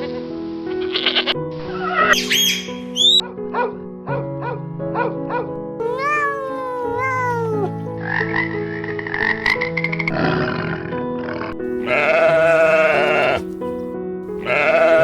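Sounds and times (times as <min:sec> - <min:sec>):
animal cries: 0:05.8 - 0:07.9, 0:11.8 - 0:13.6, 0:14.4 - 0:15.0
background music: 0:11.6 - 0:15.0.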